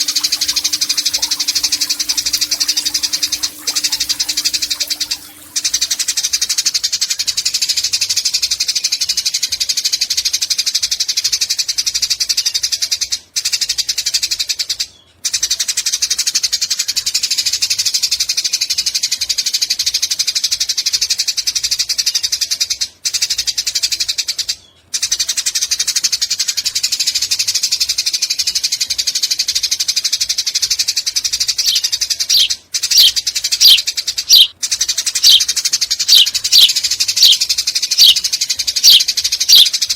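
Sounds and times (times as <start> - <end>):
sharp falling chirps: 31.6 - 34.5, 35.2 - 35.5, 36.1 - 38.2, 38.8 - 39.7
sparrow chattering: 31.6 - 34.5, 35.2 - 38.2, 38.8 - 39.8.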